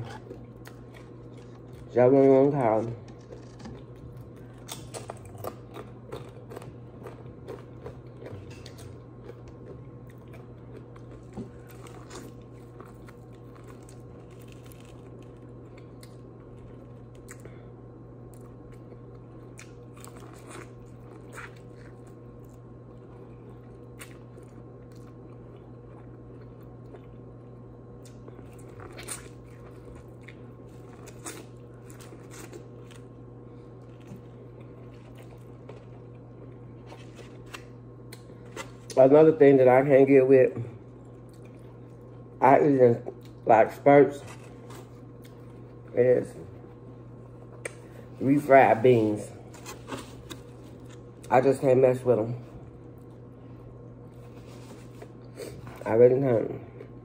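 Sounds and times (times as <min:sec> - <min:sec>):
steady low hum: 0:00.0 - 0:57.0
wet chewing: 0:03.0 - 0:17.5.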